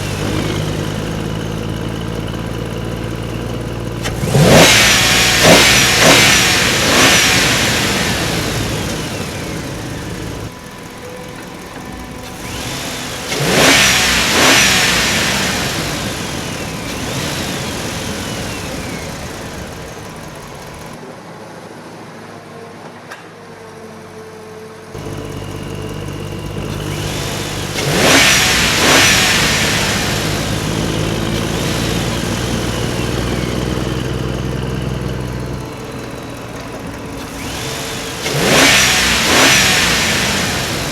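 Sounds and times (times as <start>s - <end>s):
engine running: 0.0s - 21.0s, 25.0s - 40.9s.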